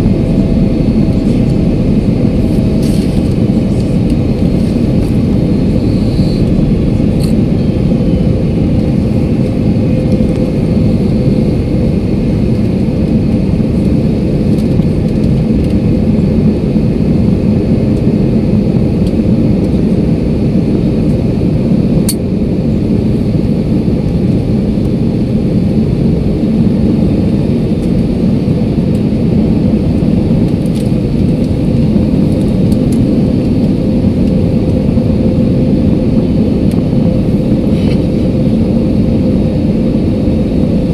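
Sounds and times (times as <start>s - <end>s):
faint steady hum: 0.0s - 12.1s
airliner cabin engine rush: 0.0s - 40.9s.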